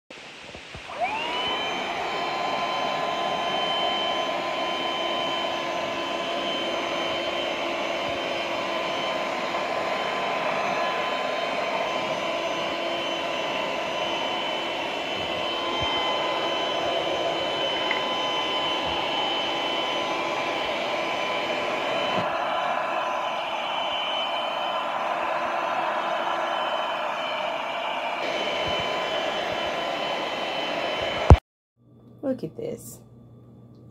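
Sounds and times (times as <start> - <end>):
handheld vacuum motor whine: 0.5 - 31.4.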